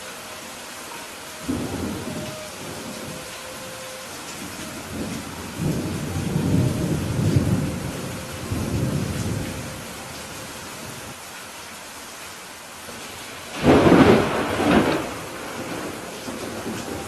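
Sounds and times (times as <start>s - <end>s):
steady rain: 0.0s - 17.0s
low roll of thunder: 1.4s - 3.5s, 4.4s - 11.1s, 13.5s - 17.0s.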